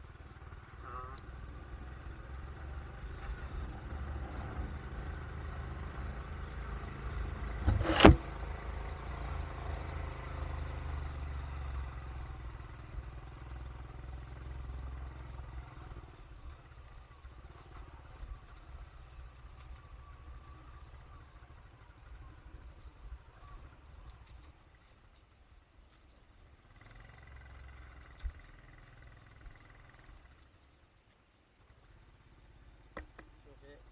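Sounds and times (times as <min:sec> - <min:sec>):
vehicle rumble: 0:00.0 - 0:33.9
sharp loud knock: 0:07.7 - 0:08.2.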